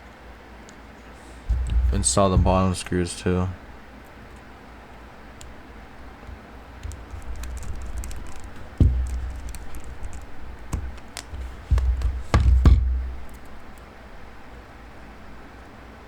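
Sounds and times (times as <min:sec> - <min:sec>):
low thuds: 0:01.4 - 0:03.8, 0:06.3 - 0:13.8
sharp knocks: 0:01.5 - 0:03.1, 0:06.3 - 0:13.8
screwdriver clicks and taps: 0:06.3 - 0:13.6.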